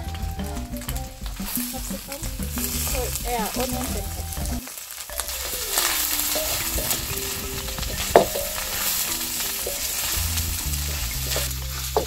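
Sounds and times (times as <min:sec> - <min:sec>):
fish and vegetables sizzling in wok: 0:00.0 - 0:12.0
spatula scraping a pan: 0:05.2 - 0:12.0.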